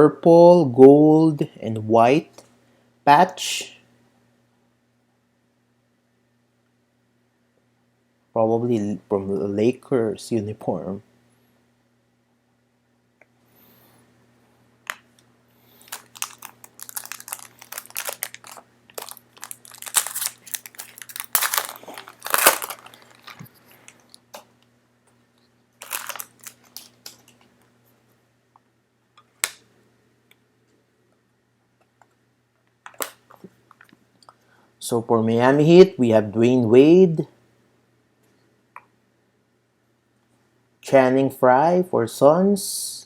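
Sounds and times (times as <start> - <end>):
foil wrapper crinkling and tearing: 15.8 - 24.1, 25.8 - 27.4.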